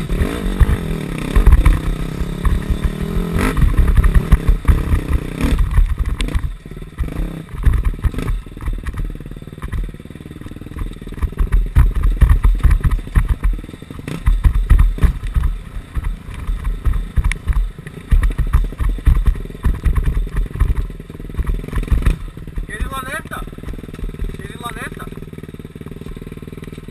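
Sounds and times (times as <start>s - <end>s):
dirt bike engine under throttle: 0.0s - 26.9s.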